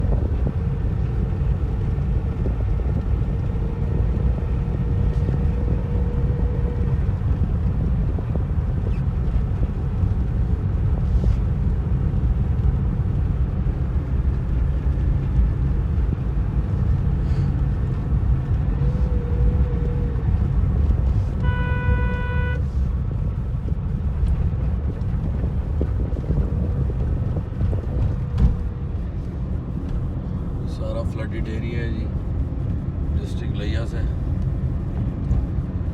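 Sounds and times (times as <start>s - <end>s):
wind on microphone: 0.0s - 30.7s
road vehicle rumble: 0.0s - 35.9s
vehicle horn: 21.4s - 22.7s.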